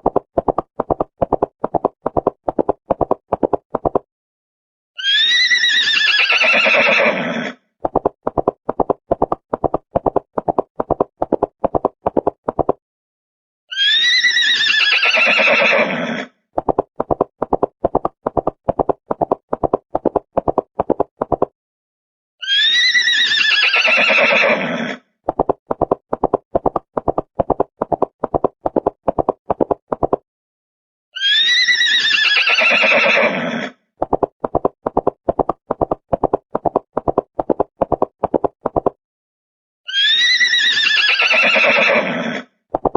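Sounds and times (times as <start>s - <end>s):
clip-clopping hoofbeats: 0.0s - 4.0s, 7.9s - 12.8s, 16.6s - 21.5s, 25.3s - 30.2s, 34.0s - 39.0s
horse whinnying: 5.0s - 7.6s, 13.7s - 16.3s, 22.4s - 25.1s, 31.2s - 33.8s, 39.9s - 42.5s.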